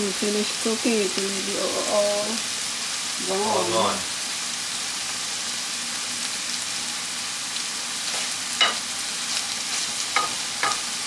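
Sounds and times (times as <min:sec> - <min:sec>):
pork sizzling in a pan: 0:00.0 - 0:11.0
metal utensil clinking on pan: 0:08.6 - 0:08.9, 0:10.2 - 0:10.9.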